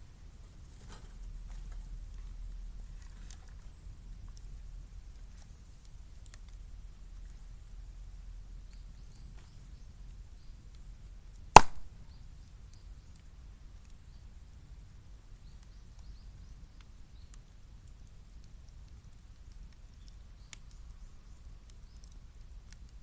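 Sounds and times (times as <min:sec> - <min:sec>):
faint fire crackling: 0:00.0 - 0:23.0
bamboo bursting with sharp bang: 0:11.6 - 0:12.0.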